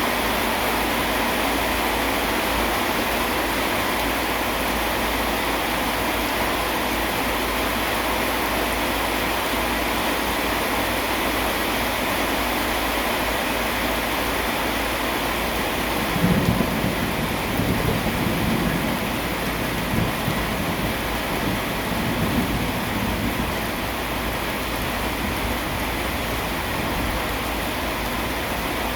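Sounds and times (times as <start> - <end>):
steady rain hiss: 0.0 - 28.9
low thunder rumbling: 15.8 - 28.8.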